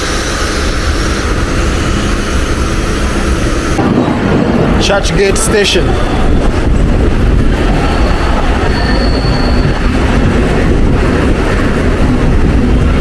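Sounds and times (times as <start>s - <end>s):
train rumbling on rails: 0.0s - 13.0s
high wheel squeal: 5.7s - 6.9s, 7.6s - 10.4s.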